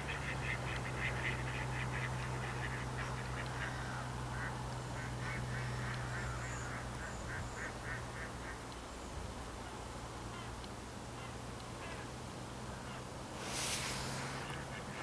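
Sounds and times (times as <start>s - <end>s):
waterfowl calling: 0.0s - 8.6s.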